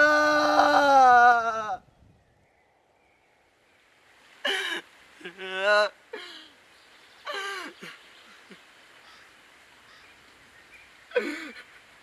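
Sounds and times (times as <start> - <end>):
person sobbing: 4.5 - 6.5.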